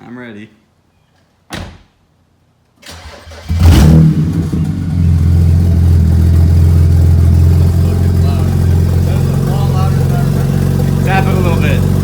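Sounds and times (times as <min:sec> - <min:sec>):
car engine starting and idling: 0:02.8 - 0:12.0.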